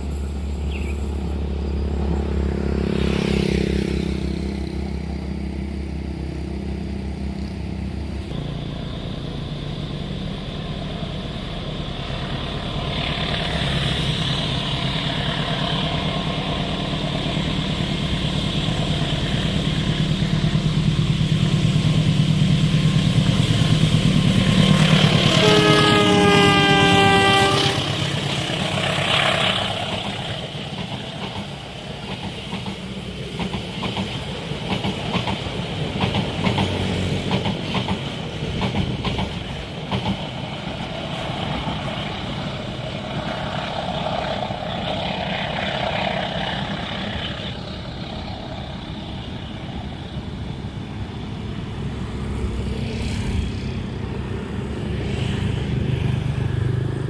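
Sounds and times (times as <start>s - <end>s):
train wagons rumbling past: 0.0s - 57.0s
train horn: 24.7s - 28.3s
wheels clicking over rail joints: 27.8s - 43.1s.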